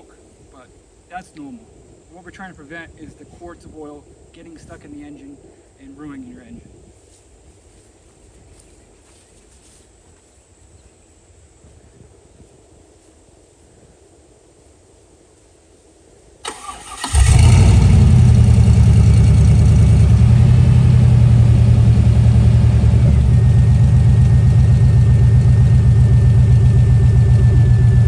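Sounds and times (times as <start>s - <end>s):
engine starter cranking: 16.4s - 20.2s
engine idling: 16.5s - 28.0s.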